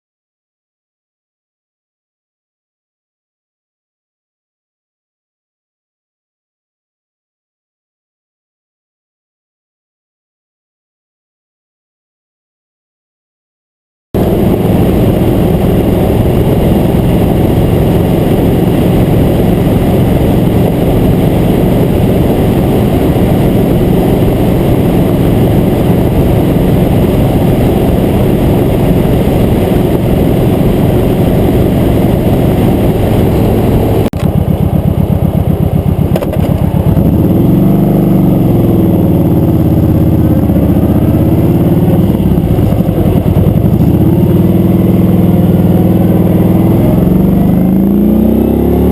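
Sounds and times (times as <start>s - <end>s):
motorcycle engine running: 14.2s - 48.9s.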